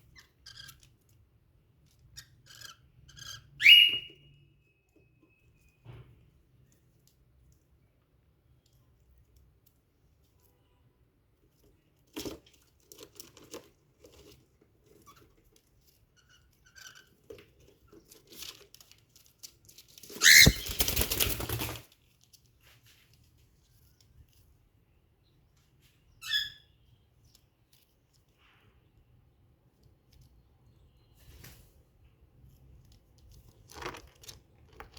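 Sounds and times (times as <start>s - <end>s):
cockatiel chirp: 2.2s - 5.4s, 20.2s - 20.8s.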